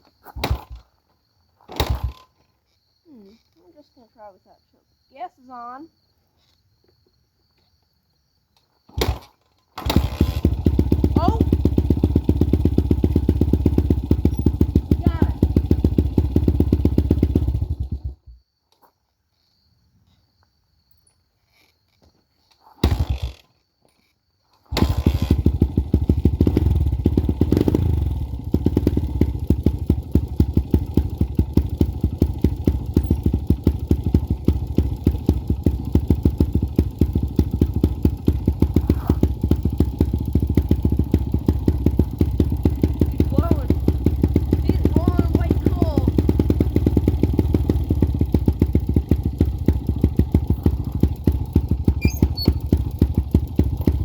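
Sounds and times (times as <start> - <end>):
dirt bike engine starting and revving: 0.3 - 1.0, 1.6 - 3.6, 8.9 - 18.3, 22.6 - 54.0.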